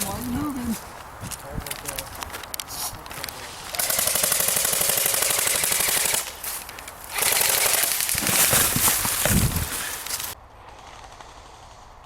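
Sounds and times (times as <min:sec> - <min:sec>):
airsoft gun automatic bursts: 0:03.7 - 0:06.4, 0:07.1 - 0:08.3.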